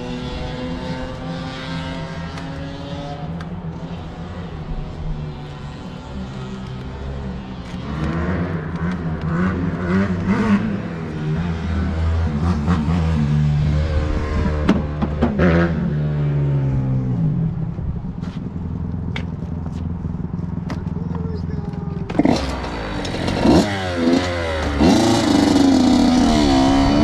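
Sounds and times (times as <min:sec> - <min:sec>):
dirt bike engine revving: 0:07.5 - 0:17.4, 0:22.1 - 0:27.0.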